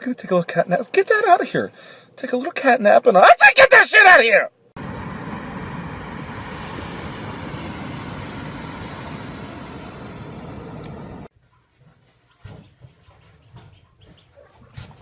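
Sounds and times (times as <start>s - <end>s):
wind: 0.0s - 15.0s
surf on a beach: 4.8s - 11.3s
wind rumbling on microphone: 4.8s - 11.3s.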